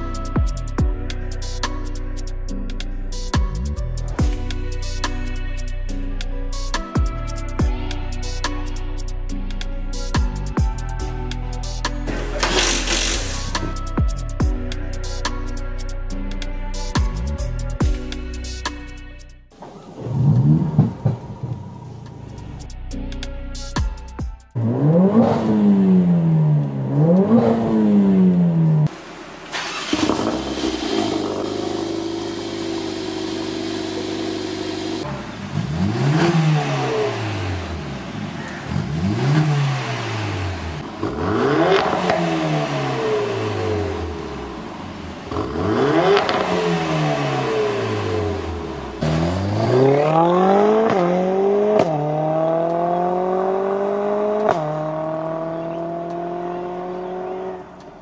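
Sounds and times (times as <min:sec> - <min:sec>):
car engine revving: 0:12.0 - 0:14.0, 0:19.7 - 0:22.7, 0:24.6 - 0:58.0.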